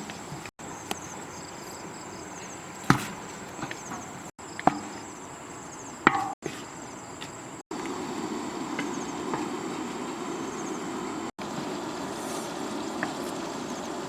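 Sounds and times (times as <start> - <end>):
insects chirring: 0.0 - 14.0
sharp chopping strikes: 2.9 - 3.8.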